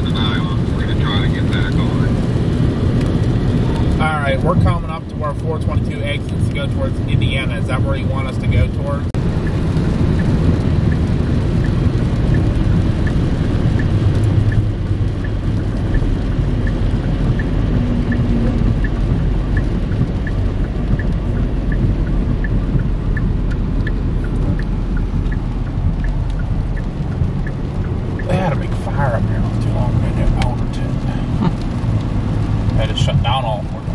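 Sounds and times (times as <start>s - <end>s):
faint regular ticking: 0.0s - 33.9s
road and rain rumble in vehicle: 0.0s - 33.9s.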